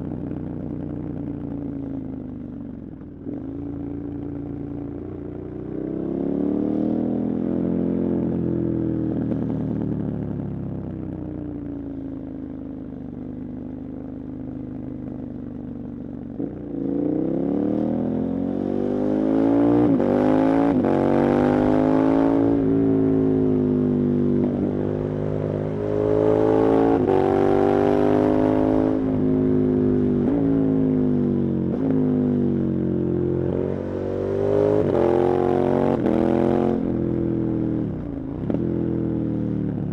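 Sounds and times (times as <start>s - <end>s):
motorcycle engine accelerating: 16.4s - 39.9s.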